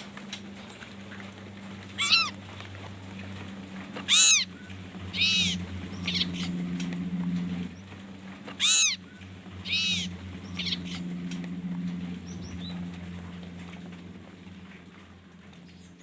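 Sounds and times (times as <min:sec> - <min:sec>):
steady low hum: 0:00.0 - 0:16.0
birds giving harsh calls: 0:02.0 - 0:02.4, 0:04.0 - 0:07.8, 0:08.5 - 0:12.9.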